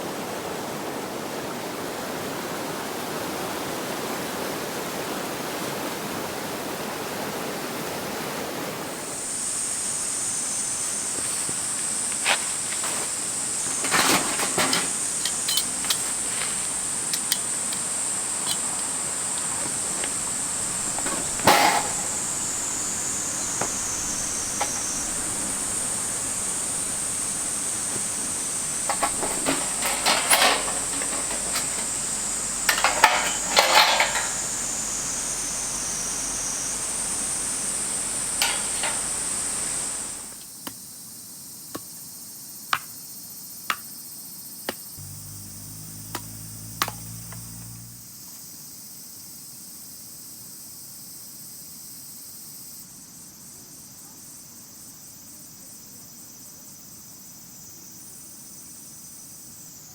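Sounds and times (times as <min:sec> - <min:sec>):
insects shrilling: 0:09.1 - 0:40.4, 0:44.8 - 0:48.2
camp gear clicks and knocks: 0:11.1 - 0:35.0, 0:38.2 - 0:40.4.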